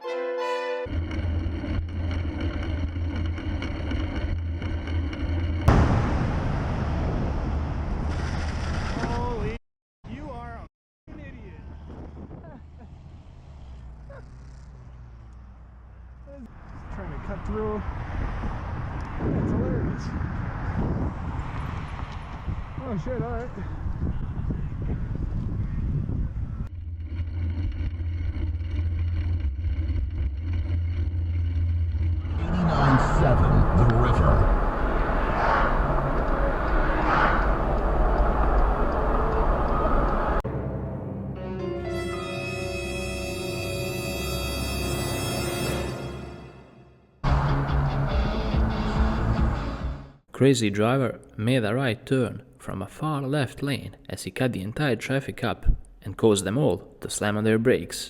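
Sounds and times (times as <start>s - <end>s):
vehicle engine and road noise: 0.9s - 41.5s, 45.0s - 50.2s
sudden sharp bang: 5.7s - 7.6s
steady rushing noise: 32.0s - 40.4s.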